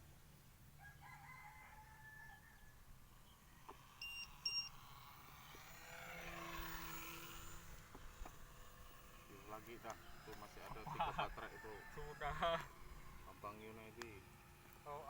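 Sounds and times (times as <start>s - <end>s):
faint whir: 0.0s - 15.0s
short electronic beeps: 4.0s - 4.9s.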